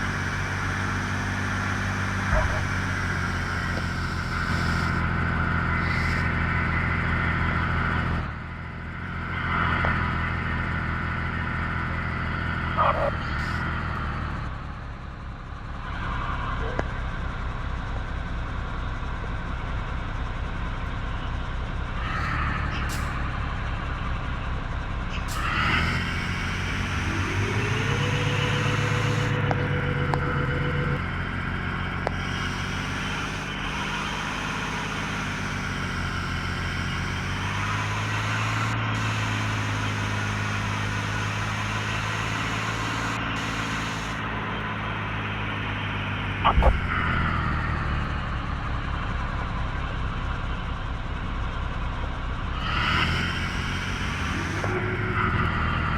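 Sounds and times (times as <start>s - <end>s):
engine whine: 0.0s - 55.9s
truck diesel engine running: 0.0s - 55.9s.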